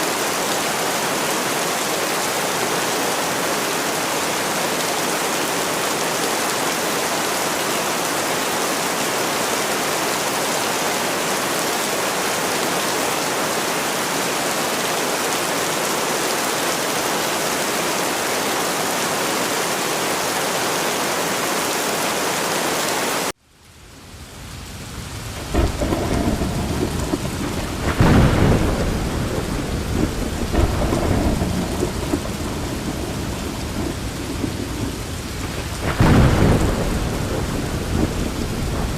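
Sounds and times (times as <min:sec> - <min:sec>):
heavy rain hissing: 0:00.0 - 0:38.9
thunder rumbling: 0:23.8 - 0:38.9.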